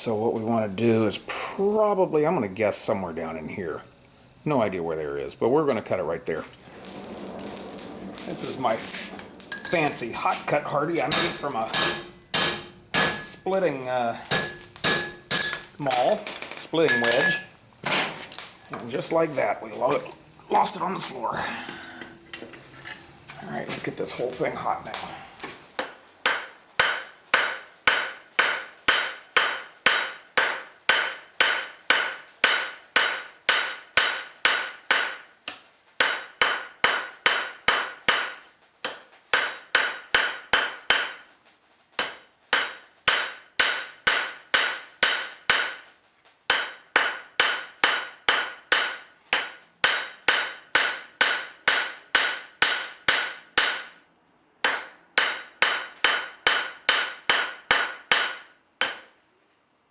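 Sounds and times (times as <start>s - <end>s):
faint high whine: 0.0s - 17.6s
hammer striking steel on anvil: 8.2s - 18.2s, 25.8s - 41.4s, 42.0s - 59.2s.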